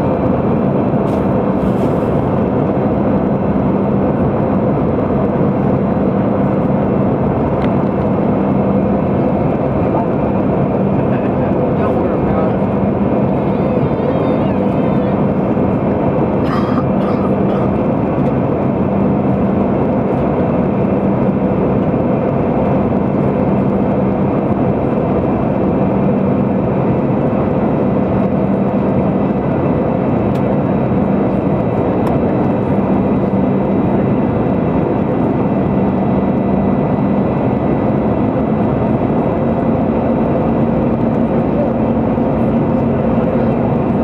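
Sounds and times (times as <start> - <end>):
airplane cabin engine drone: 0.0 - 44.0.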